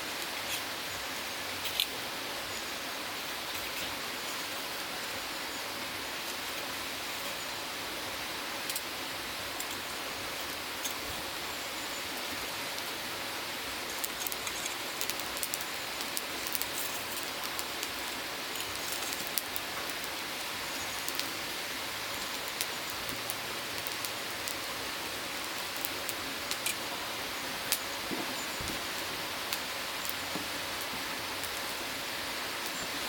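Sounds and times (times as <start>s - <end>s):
charcoal fire sizzling: 0.0s - 33.0s
sharp pops and crackles: 8.6s - 8.9s, 13.7s - 26.9s, 27.6s - 31.8s.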